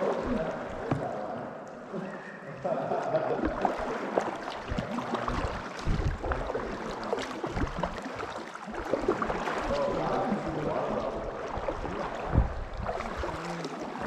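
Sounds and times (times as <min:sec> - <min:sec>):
paddle blades splashing in water: 0:00.0 - 0:01.5, 0:02.7 - 0:14.0
water dripping: 0:00.0 - 0:14.0.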